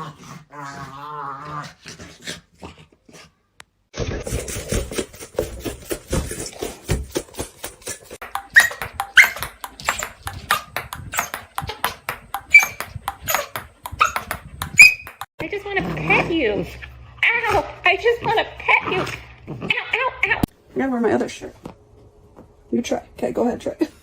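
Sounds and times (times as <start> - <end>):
dog paws tapping and scuffling: 4.2 - 15.3
dog yips: 8.5 - 11.4, 12.4 - 15.2.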